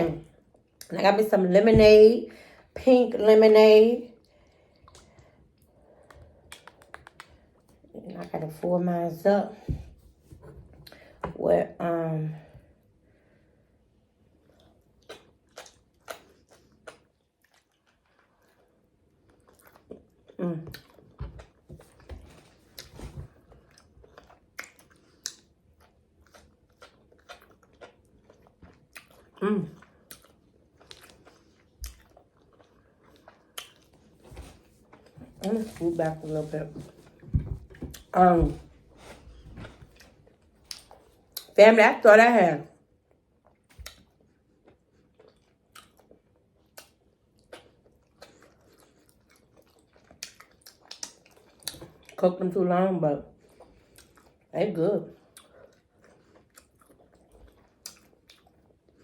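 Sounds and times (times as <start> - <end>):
person chewing food: 4.2 - 7.8, 14.3 - 35.7, 37.0 - 41.6, 42.9 - 52.2, 53.3 - 54.5, 55.2 - 59.0
wet mouth clicks: 6.5 - 7.4.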